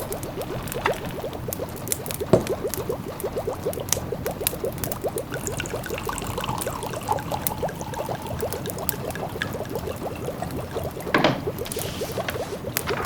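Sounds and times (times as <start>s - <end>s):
wood fire crackling: 0.0s - 6.2s, 6.8s - 13.0s
pot of food bubbling: 0.0s - 13.0s.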